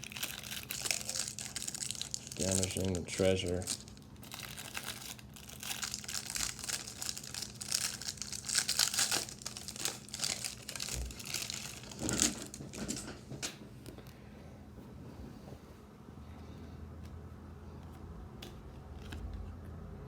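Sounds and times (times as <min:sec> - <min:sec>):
wrapper crinkling and tearing: 0:00.0 - 0:13.0.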